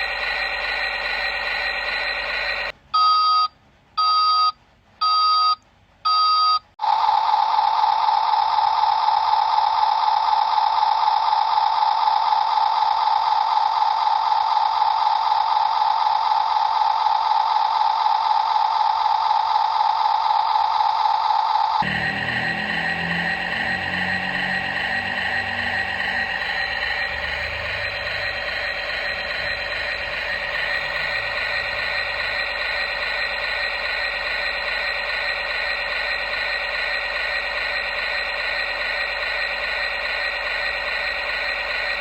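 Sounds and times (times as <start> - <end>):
steady electronic buzzing tone: 21.8 - 36.4.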